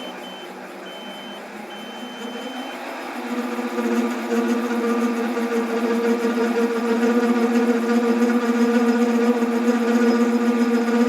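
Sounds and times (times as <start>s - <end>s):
electronic beeps: 0.0s - 2.5s
metal lathe running: 0.0s - 11.0s.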